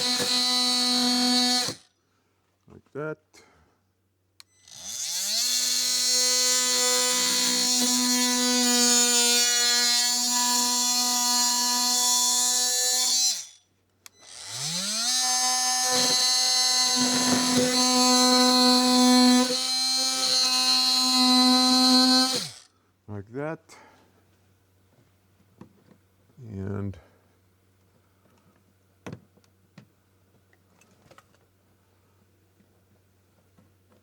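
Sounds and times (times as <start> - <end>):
oscillating multi-tool buzzing: 0.0 - 1.9, 4.4 - 22.7.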